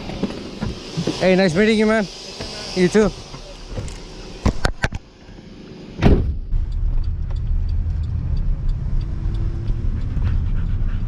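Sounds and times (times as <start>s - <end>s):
vehicle engine and road noise: 0.0s - 11.0s
thump: 6.0s - 6.5s
faint regular ticking: 6.6s - 10.2s.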